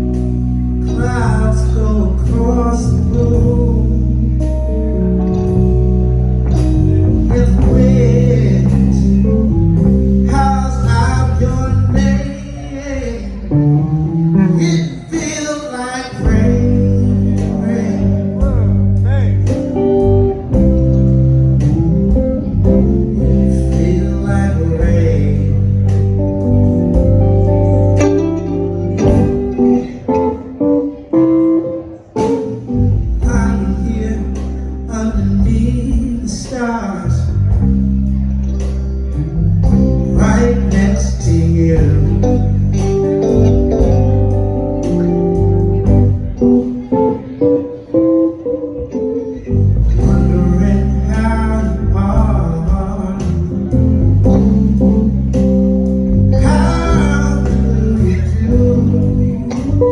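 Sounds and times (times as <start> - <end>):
person singing: 0.0 - 5.4, 6.5 - 21.0, 21.6 - 38.4, 39.0 - 59.9
electric guitar notes: 0.0 - 59.9
live blues band: 0.0 - 59.9.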